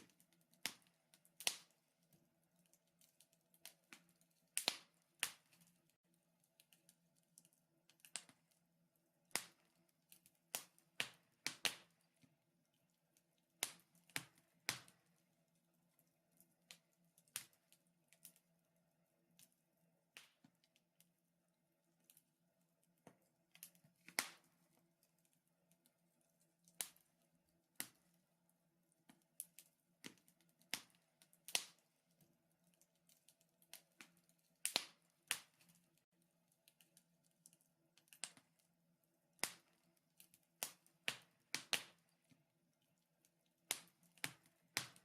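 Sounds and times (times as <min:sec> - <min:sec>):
wood fire crackling: 0:00.0 - 0:18.5, 0:21.8 - 0:38.7, 0:39.3 - 0:45.0.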